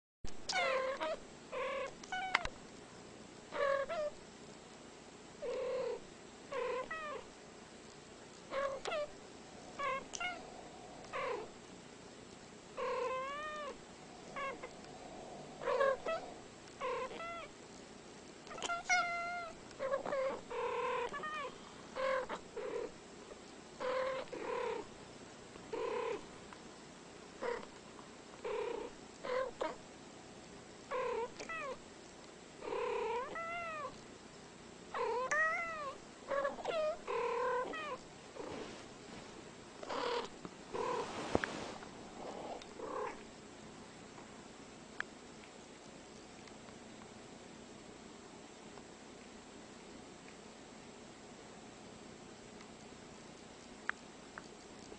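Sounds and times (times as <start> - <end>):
cats mewing: 12.8 - 17.5.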